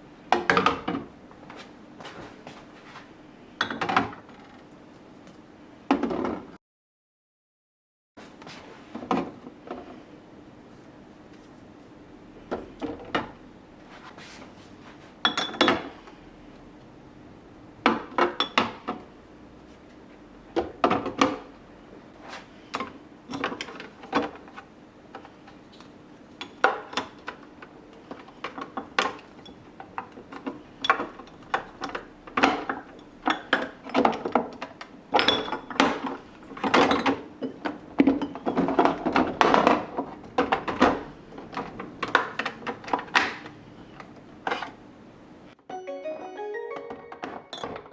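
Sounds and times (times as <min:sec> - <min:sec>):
plastic containers clattering: 0:26.6 - 0:43.5.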